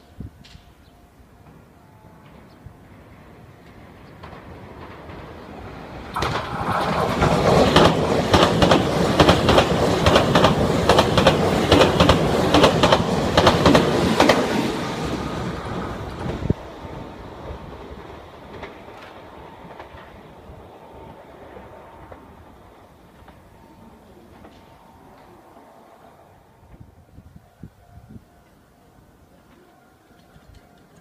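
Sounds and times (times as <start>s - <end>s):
train wheels clattering over rail joints: 4.2s - 14.6s.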